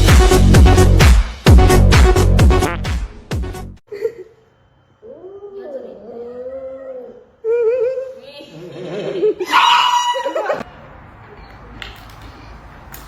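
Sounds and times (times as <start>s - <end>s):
people laughing and shrieking: 7.6s - 10.6s
wavering high calls: 9.4s - 10.6s.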